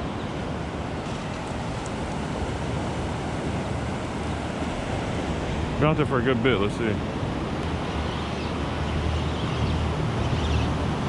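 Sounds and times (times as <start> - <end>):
ocean surf washing on beach: 0.0 - 11.0.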